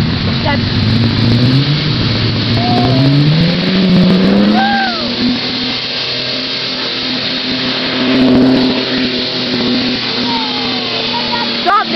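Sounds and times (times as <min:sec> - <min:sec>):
car engine at rev limiter: 0:00.0 - 0:11.9.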